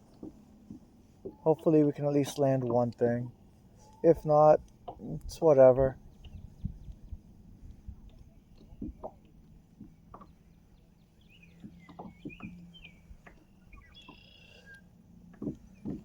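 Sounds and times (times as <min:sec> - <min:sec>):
steady low hum: 0:00.0 - 0:16.0
light knocks and taps: 0:06.2 - 0:10.4, 0:11.6 - 0:14.2, 0:15.3 - 0:16.0.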